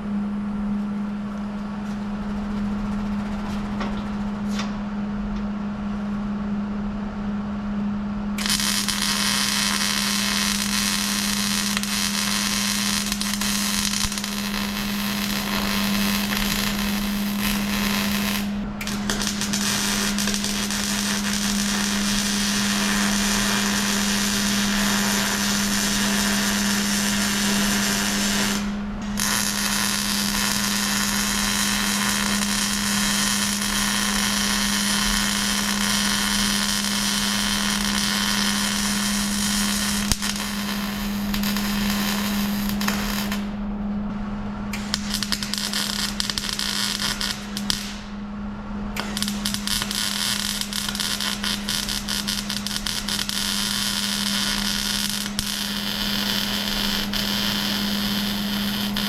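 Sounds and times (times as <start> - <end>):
steady hum: 0.0 - 59.0
power tool hissing and crackling: 8.4 - 43.6, 44.7 - 48.0, 49.0 - 59.0.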